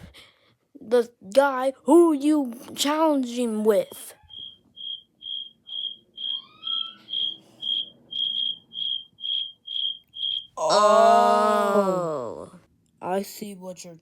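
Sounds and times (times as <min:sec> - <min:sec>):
cricket chirping: 0:04.2 - 0:10.6.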